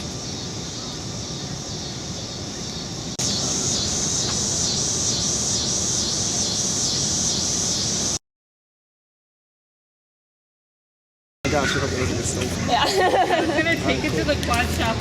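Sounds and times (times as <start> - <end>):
steady hissing noise: 0.0 - 8.2, 11.5 - 15.0.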